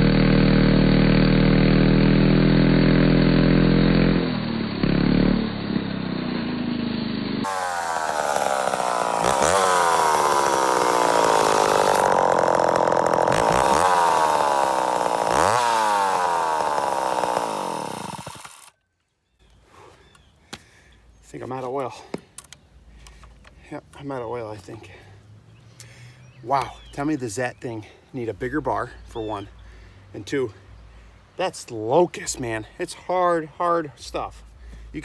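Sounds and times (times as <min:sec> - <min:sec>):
chainsaw cutting wood: 0:00.0 - 0:18.8.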